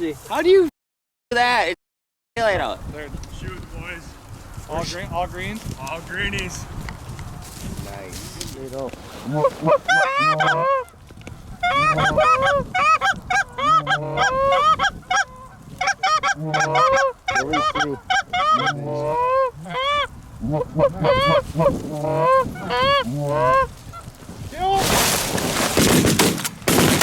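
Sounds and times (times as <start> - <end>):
goose honking: 9.2 - 11.0, 11.6 - 24.1.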